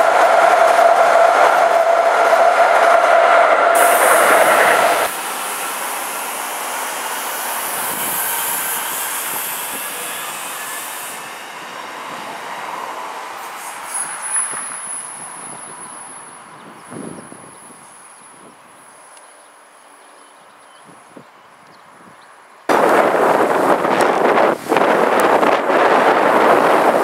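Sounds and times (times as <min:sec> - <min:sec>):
steady high-pitched tone: 0:00.0 - 0:08.9
electric train running past: 0:00.0 - 0:16.5, 0:22.7 - 0:27.0
train crossing a bridge: 0:00.0 - 0:27.0.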